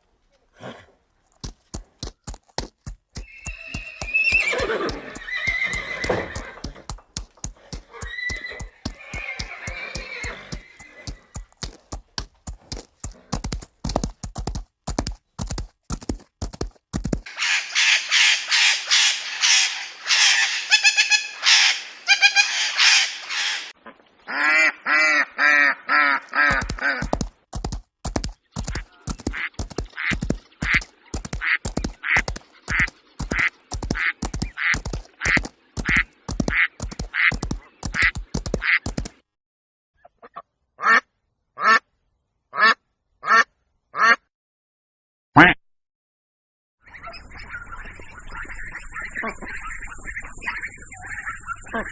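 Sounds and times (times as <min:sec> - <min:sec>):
rapid repeated clicks: 0:01.3 - 0:17.3, 0:26.3 - 0:39.2
harsh squawking calls: 0:03.2 - 0:06.7, 0:07.9 - 0:11.3, 0:17.3 - 0:27.1, 0:46.9 - 0:51.9
ducks quacking: 0:17.3 - 0:27.2, 0:28.7 - 0:39.2, 0:46.9 - 0:51.9.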